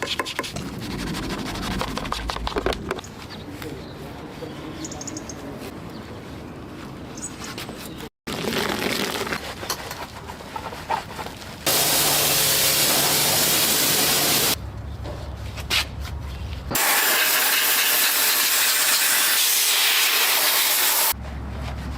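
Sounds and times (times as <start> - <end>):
pressurised spray hissing: 11.7 - 14.6, 16.8 - 21.2.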